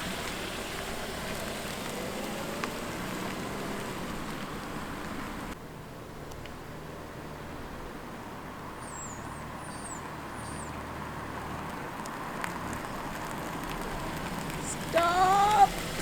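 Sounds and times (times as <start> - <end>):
car engine humming: 0.0 - 16.0
click: 6.3 - 6.6.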